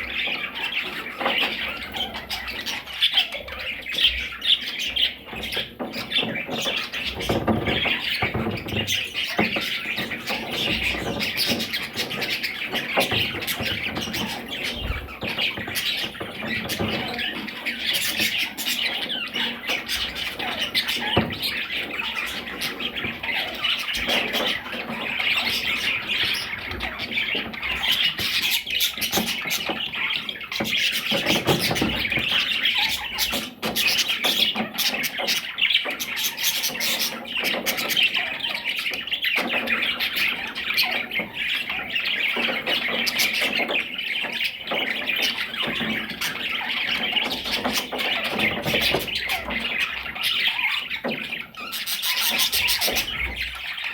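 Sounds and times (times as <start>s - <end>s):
parrots chattering: 0.0s - 53.9s.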